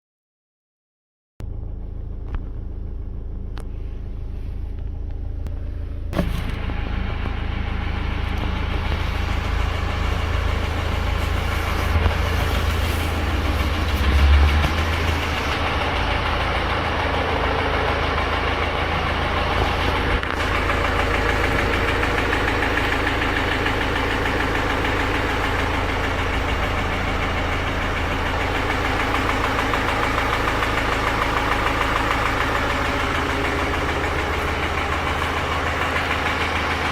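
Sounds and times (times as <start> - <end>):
diesel engine idling: 1.4 - 36.9
low thump: 6.1 - 6.7
metallic engine knocking: 6.2 - 36.9.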